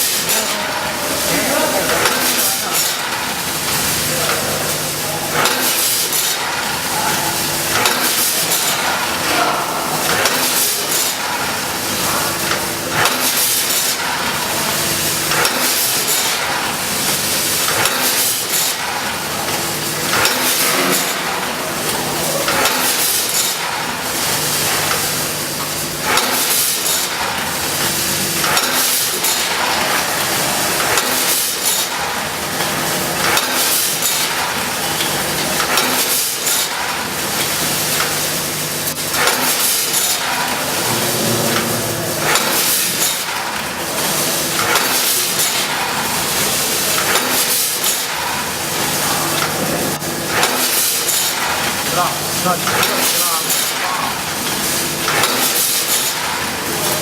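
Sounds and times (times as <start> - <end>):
machine mechanism clacking: 0.0 - 49.6, 50.3 - 57.0
packaging machine humming: 0.0 - 57.0.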